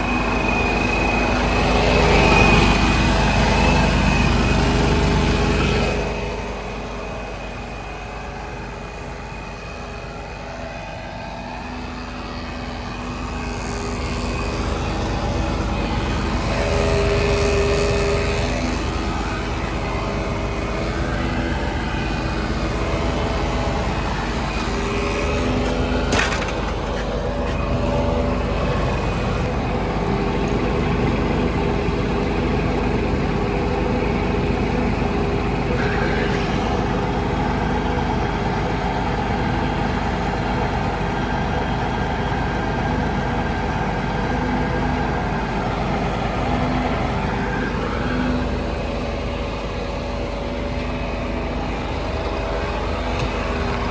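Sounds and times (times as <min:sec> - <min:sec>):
diesel truck engine running: 0:00.0 - 0:53.9.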